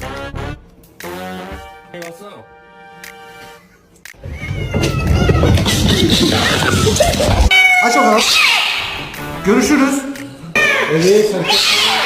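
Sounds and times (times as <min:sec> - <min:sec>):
background noise: 0:00.0 - 0:12.0
cat meowing loudly: 0:07.5 - 0:08.9, 0:11.5 - 0:12.0.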